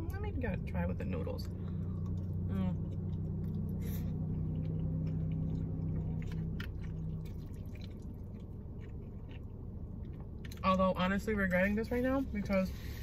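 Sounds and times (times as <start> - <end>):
steady low hum: 0.0 - 13.0
person chewing: 1.4 - 10.7
wet mouth clicks and squishes: 4.6 - 10.8.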